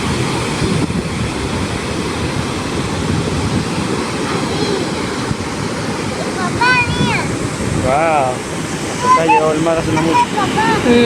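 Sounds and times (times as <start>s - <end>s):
ocean surf on a beach: 0.0s - 11.0s
wind rumbling on microphone: 0.0s - 11.0s.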